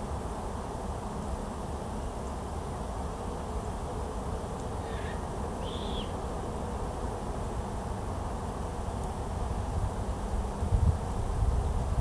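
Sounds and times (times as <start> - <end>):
small bird calls: 4.8 - 6.2.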